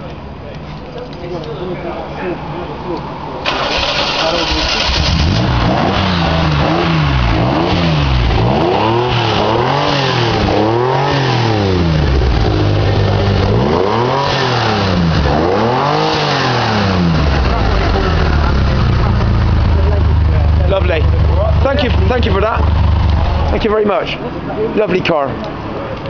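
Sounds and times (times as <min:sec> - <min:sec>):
car engine revving: 0:03.4 - 0:23.8.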